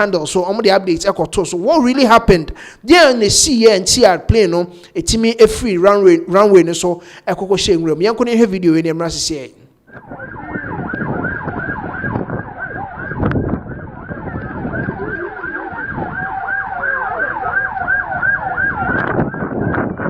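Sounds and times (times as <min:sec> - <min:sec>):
emergency siren yelping: 0:09.9 - 0:20.0.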